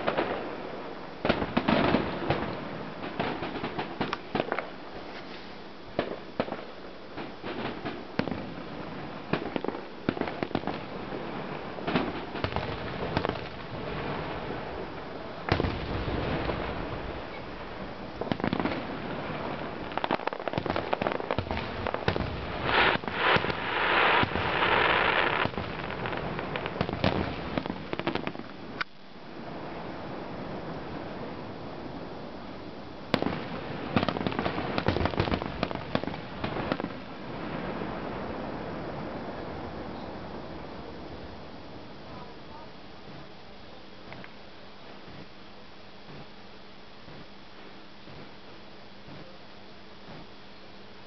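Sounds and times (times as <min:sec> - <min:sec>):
fireworks bangs and pops: 0:00.0 - 0:00.6, 0:01.2 - 0:28.9, 0:33.1 - 0:38.1, 0:48.0 - 0:48.4
fireworks crackling: 0:00.0 - 0:42.4, 0:46.0 - 0:50.4.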